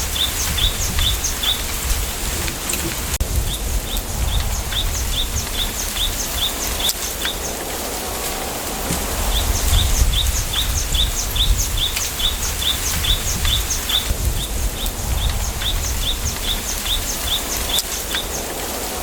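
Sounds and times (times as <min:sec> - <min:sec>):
bird chirping rapidly: 0:00.0 - 0:07.6
wind rumble: 0:00.0 - 0:19.0.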